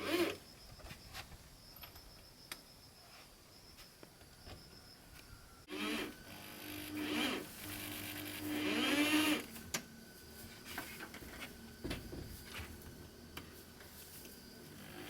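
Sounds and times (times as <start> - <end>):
electric power tool cutting wood: 5.7 - 9.5.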